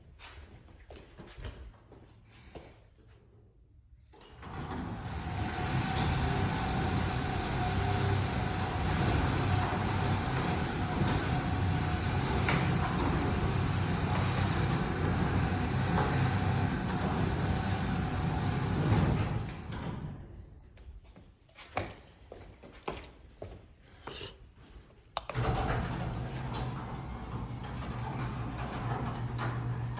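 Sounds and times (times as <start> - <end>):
garage door motor humming: 4.2 - 20.4, 25.3 - 29.9.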